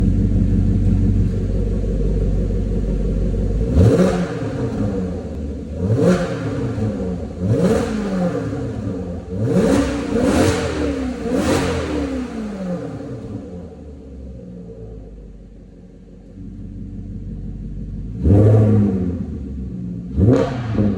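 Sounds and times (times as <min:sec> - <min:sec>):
car engine idling and revving: 0:00.0 - 0:20.9.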